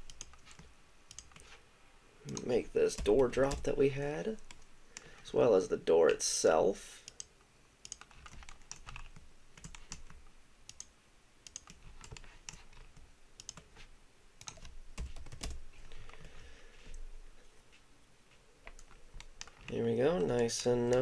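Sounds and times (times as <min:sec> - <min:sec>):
keyboard keystrokes: 0:02.3 - 0:04.6.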